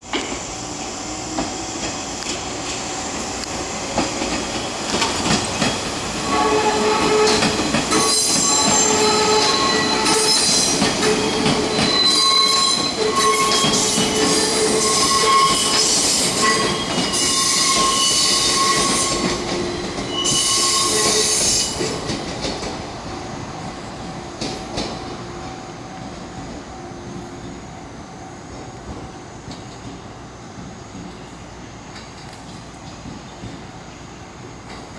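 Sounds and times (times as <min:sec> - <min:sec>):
train rolling rumble: 0:00.0 - 0:34.9
train wheels squealing: 0:04.0 - 0:22.2, 0:26.7 - 0:34.7.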